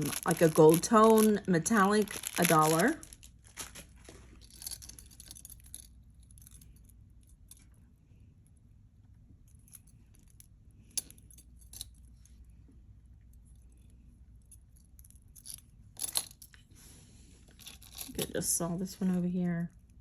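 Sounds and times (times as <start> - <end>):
jewelry clinking: 0.0 - 7.8, 9.5 - 12.5, 13.2 - 16.8, 17.4 - 19.1.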